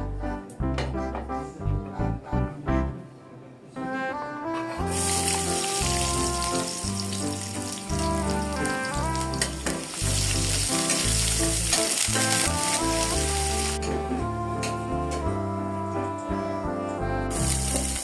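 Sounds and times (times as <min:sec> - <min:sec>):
instrumental background music: 0:00.0 - 0:18.0
food frying sizzle: 0:04.9 - 0:13.9, 0:17.3 - 0:18.0.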